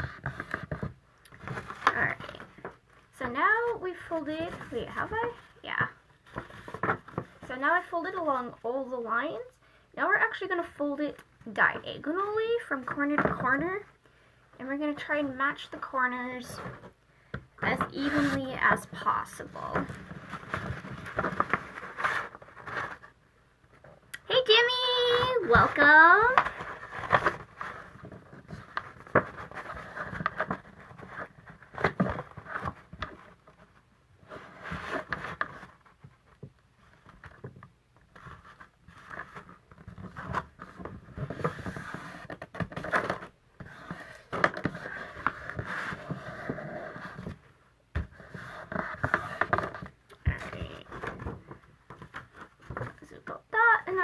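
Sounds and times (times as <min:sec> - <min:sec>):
cardstock rustling and creasing: 0:17.6 - 0:53.3.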